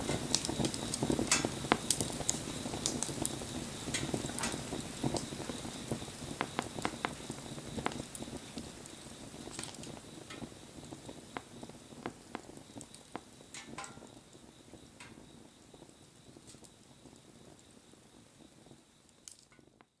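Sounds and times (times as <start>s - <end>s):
wood fire crackling: 0.0s - 19.9s.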